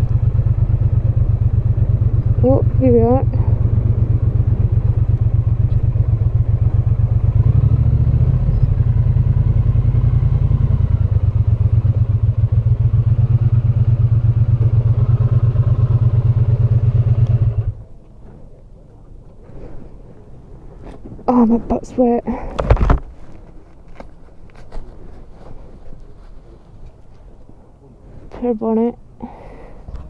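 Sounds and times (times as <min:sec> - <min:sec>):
motorcycle engine running: 0:00.0 - 0:17.8.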